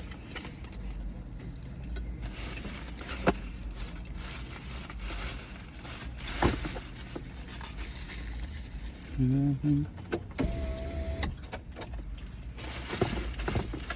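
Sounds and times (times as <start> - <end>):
low steady rumble: 0.0 - 13.9
paper wrapping rustling: 2.2 - 9.4.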